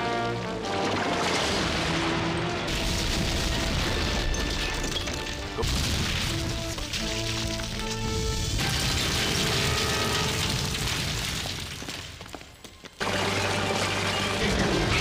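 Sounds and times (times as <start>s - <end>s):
background music with held notes: 0.0s - 2.7s
rock crashing and crumbling: 0.6s - 13.0s.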